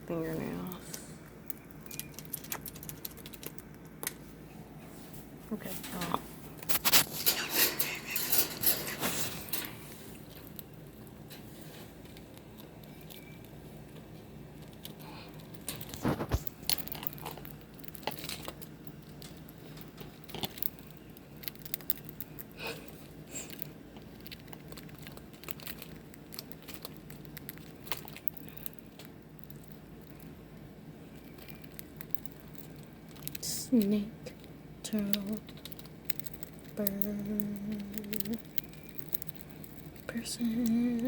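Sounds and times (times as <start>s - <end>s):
faint steady hum: 0.0s - 41.0s
crinkling rustles: 0.8s - 30.3s.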